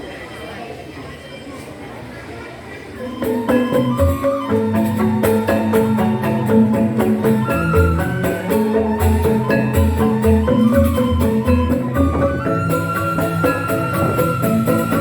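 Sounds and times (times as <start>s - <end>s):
bamboo xylophones: 3.0s - 15.0s
low bass notes: 3.8s - 15.0s.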